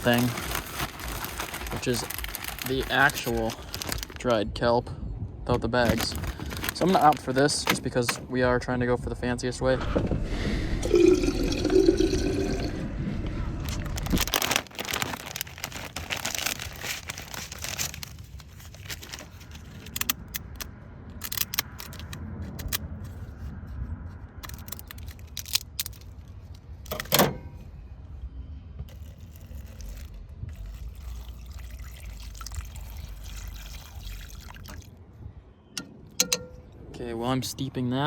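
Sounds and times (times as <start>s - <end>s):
low steady rumble: 0.0s - 38.0s
water pouring into a pot: 10.8s - 12.8s, 30.5s - 34.9s
clinks and handling knocks: 35.8s - 36.7s.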